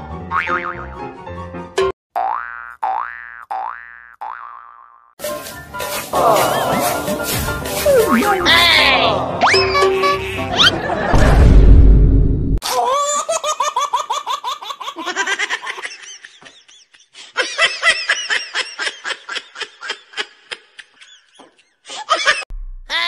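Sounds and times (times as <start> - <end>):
loud music: 5.3 - 11.6
high-pitched laughter: 9.4 - 11.1, 12.6 - 23.0.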